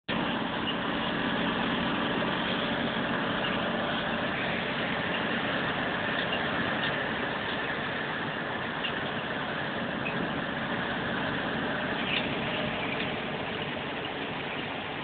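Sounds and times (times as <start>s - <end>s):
truck engine droning: 0.0s - 15.0s.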